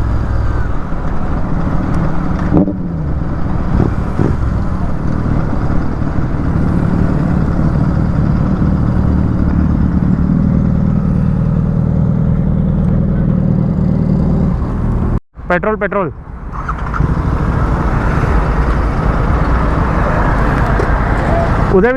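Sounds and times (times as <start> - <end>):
motorcycle engine running: 0.0 - 15.2.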